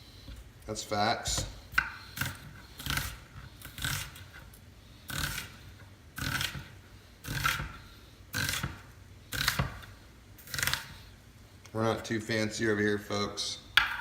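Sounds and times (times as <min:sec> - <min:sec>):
knife slicing onion on board: 0:01.2 - 0:11.0.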